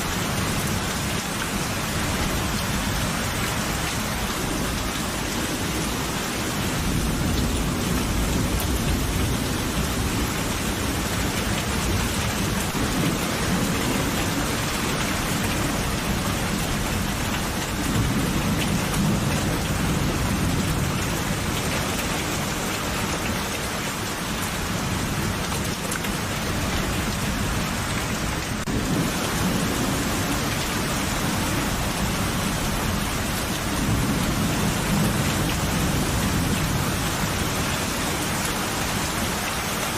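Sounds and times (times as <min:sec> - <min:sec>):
heavy rain falling: 0:00.0 - 0:39.9
low rolling thunder: 0:04.1 - 0:21.6, 0:28.6 - 0:39.0.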